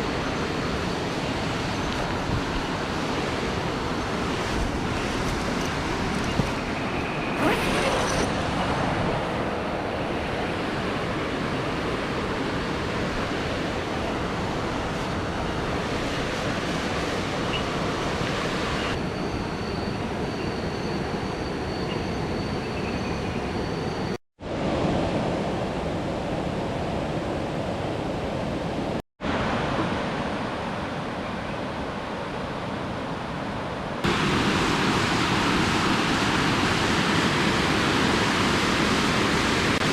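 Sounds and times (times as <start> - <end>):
waterfall rushing: 34.0 - 39.9.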